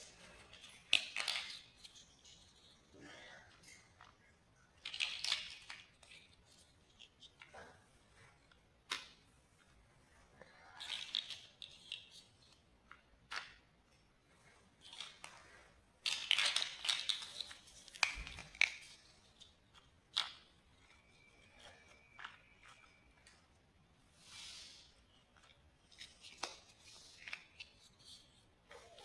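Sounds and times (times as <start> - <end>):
plastic pieces rustling and scraping: 0.2 - 2.8, 4.8 - 7.5, 10.8 - 12.6, 14.3 - 23.4
plastic blocks clicking and snapping: 0.5 - 2.8, 4.8 - 7.5, 8.8 - 9.2, 10.8 - 13.7, 14.8 - 15.4, 16.0 - 23.4, 25.3 - 29.0.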